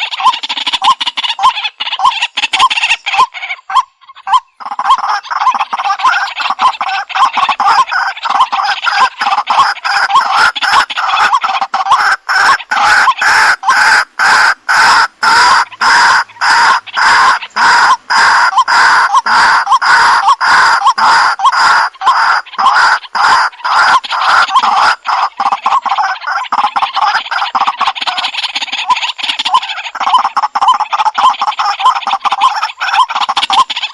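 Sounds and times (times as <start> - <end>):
waterhen calling: 0.0 - 33.9.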